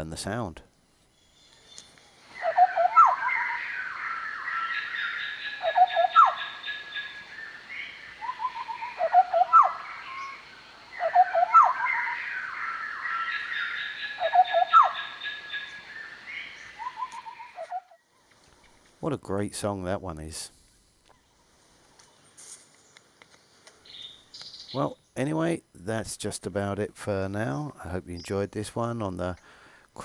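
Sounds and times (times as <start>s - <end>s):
higher bird chattering: 2.4s - 7.2s, 11.0s - 15.8s.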